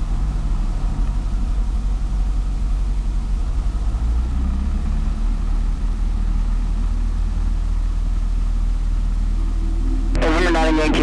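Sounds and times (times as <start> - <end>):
airplane engine drone: 6.3 - 11.0.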